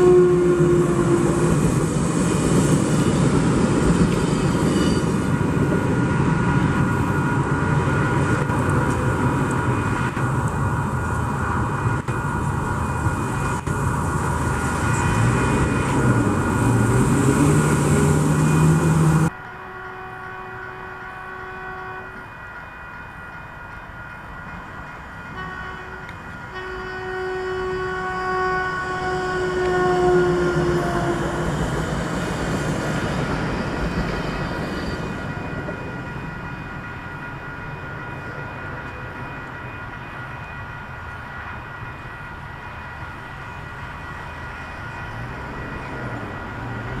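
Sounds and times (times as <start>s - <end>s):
train horn: 0.0s - 1.7s, 4.4s - 5.2s, 14.6s - 22.6s, 25.3s - 31.5s
train running noise: 0.0s - 47.0s.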